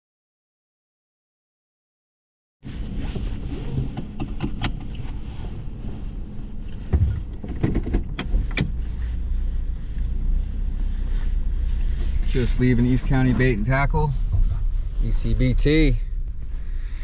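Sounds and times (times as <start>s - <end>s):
truck engine and road rumble: 2.6s - 17.0s
light knocks and rattles: 6.8s - 8.8s.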